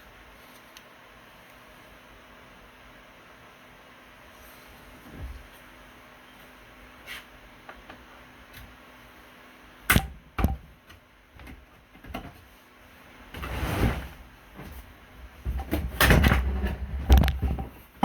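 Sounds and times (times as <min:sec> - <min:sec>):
rustling scrape: 0:13.4 - 0:14.9.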